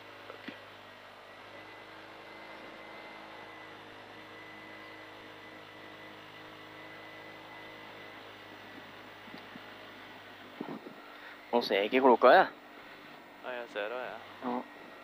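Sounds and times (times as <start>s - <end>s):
faint high whine: 0.0s - 15.0s
car engine idling: 3.4s - 15.0s.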